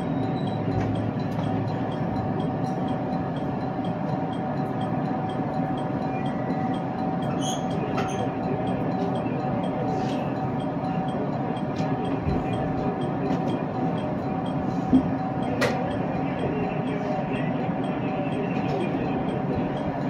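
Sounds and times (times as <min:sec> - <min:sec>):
constant hum: 0:00.0 - 0:20.0
train interior rumble: 0:00.0 - 0:20.0.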